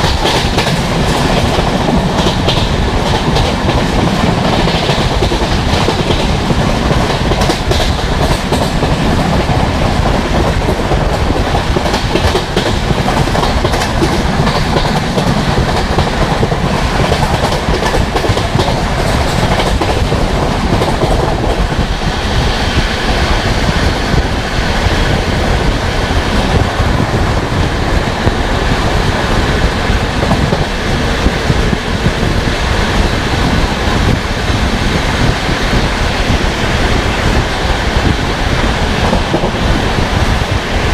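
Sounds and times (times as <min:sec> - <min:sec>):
wheels clacking over rail joints: 0:00.0 - 0:22.0
train wheels rumbling on rails: 0:00.0 - 0:40.9.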